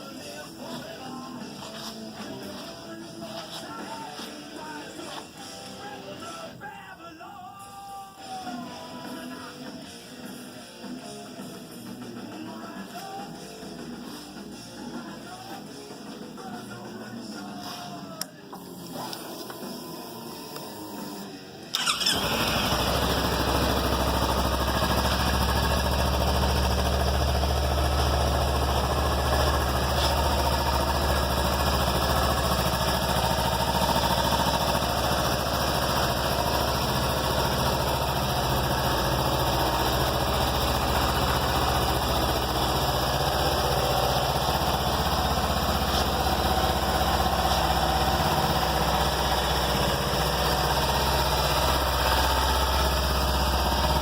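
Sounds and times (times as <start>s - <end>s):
motorcycle engine starting and idling: 18.5s - 54.0s.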